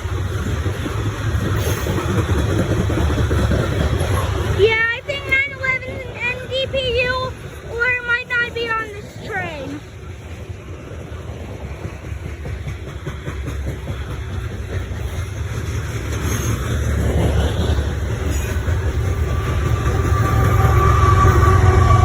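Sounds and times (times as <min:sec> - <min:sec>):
freight train rumbling past: 0:00.0 - 0:22.0
steady tones: 0:04.2 - 0:10.9.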